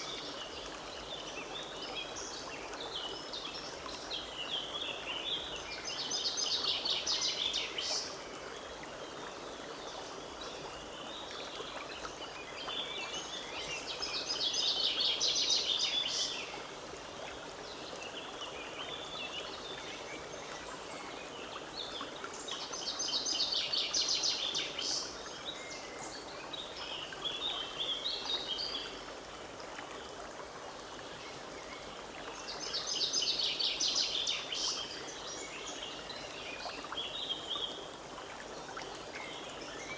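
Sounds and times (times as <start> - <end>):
forest stream running: 0.0 - 39.9.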